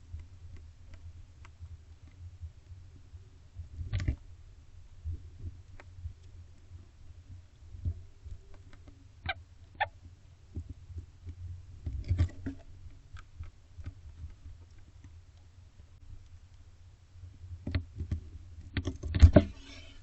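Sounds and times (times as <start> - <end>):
steady low hum: 0.0 - 20.0
owl squeaky calls: 9.2 - 9.9.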